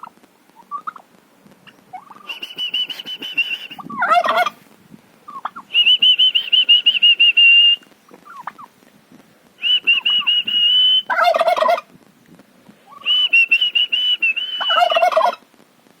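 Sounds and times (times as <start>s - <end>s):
turkey gobbling: 0.0s - 4.6s, 5.3s - 7.4s, 8.1s - 8.7s, 9.8s - 11.9s, 12.9s - 15.4s
warbling high whistles: 2.2s - 3.9s, 9.6s - 11.2s, 13.0s - 15.1s.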